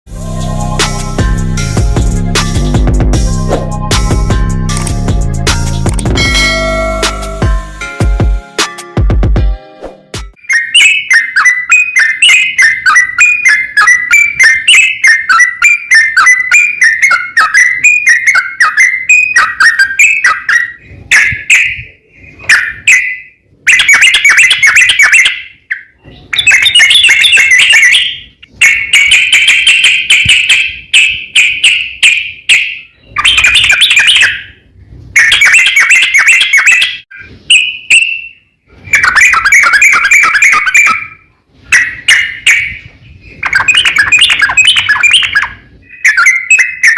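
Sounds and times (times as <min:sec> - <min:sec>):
bulbul singing: 0:10.2 - 0:46.9.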